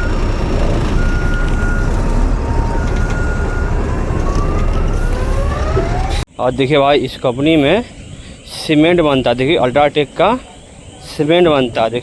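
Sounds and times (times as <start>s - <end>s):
two-tone electronic alarm: 0.0s - 6.2s
truck engine rumbling: 0.0s - 12.0s.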